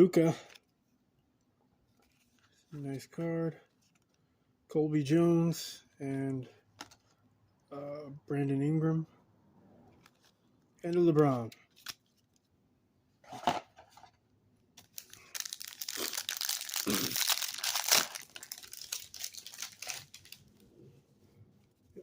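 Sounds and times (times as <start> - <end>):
plastic wrapper crackling: 14.8 - 20.6
wrapper rustle: 14.8 - 20.6.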